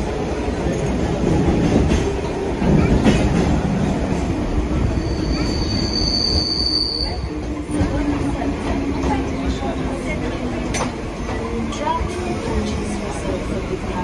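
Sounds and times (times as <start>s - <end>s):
train wheels rumbling on track: 0.0s - 14.0s
high-pitched wheel squeal: 4.9s - 7.3s.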